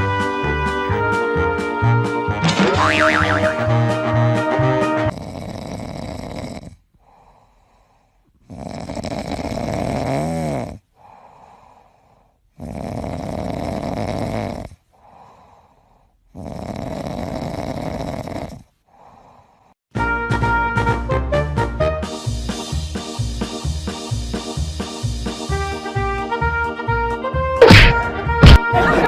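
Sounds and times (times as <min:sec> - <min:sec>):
snoring: 0:05.1 - 0:11.6, 0:12.5 - 0:19.7.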